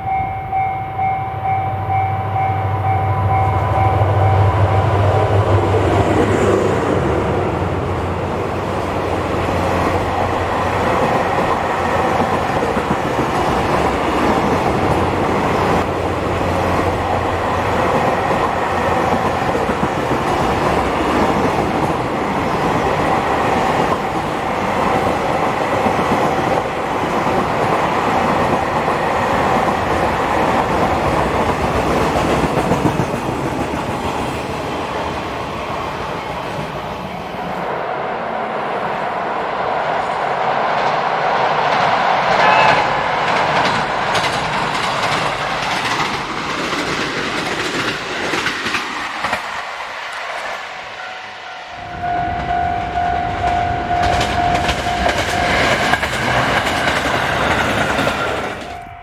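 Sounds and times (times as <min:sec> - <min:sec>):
train running on rails: 0:00.0 - 0:59.0
wheels clacking over rail joints: 0:06.1 - 0:34.7, 0:40.8 - 0:50.8, 0:51.8 - 0:59.0.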